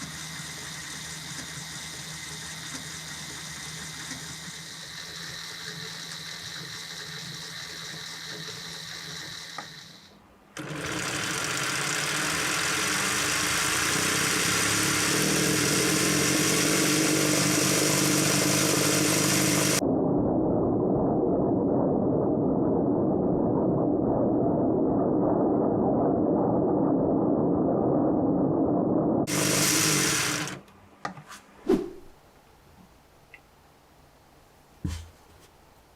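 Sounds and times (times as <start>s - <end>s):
plastic engine model whirring: 0.0s - 19.8s, 29.3s - 30.7s.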